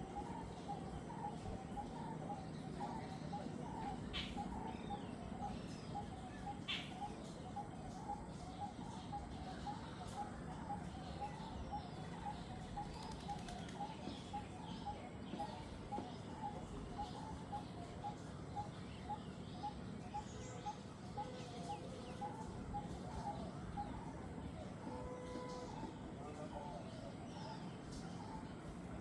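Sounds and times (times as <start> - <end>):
birds chirping: 0.0 - 29.0
forest background hum: 0.0 - 29.0.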